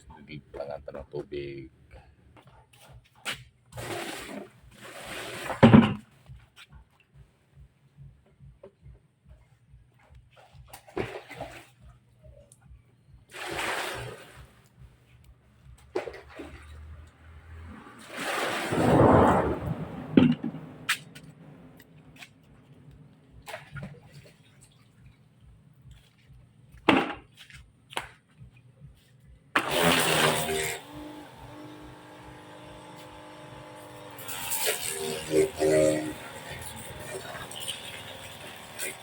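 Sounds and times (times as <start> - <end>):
water rushing into washing machine: 3.8 - 5.8, 13.3 - 14.6, 17.7 - 19.9, 29.6 - 39.0.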